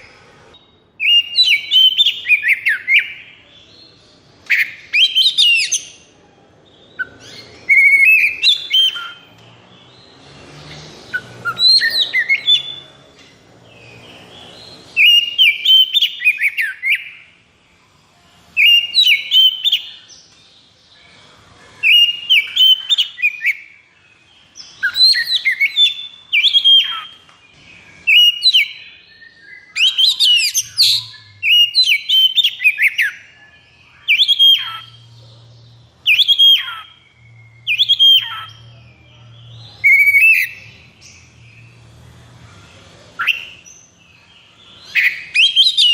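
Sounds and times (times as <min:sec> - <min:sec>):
bird singing whistled notes: 0:00.5 - 0:03.5, 0:04.4 - 0:06.1, 0:06.7 - 0:09.4, 0:11.1 - 0:12.9, 0:13.7 - 0:17.3, 0:18.6 - 0:20.2, 0:21.8 - 0:23.8, 0:24.4 - 0:41.8, 0:43.2 - 0:45.9.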